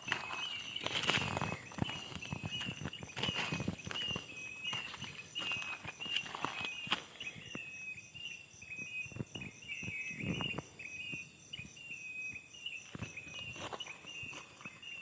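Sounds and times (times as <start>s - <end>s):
footsteps on soft ground: 0.0s - 7.7s, 12.8s - 15.0s
insect pulsing trill: 0.0s - 15.0s
insect short repeated chirp: 0.0s - 15.0s.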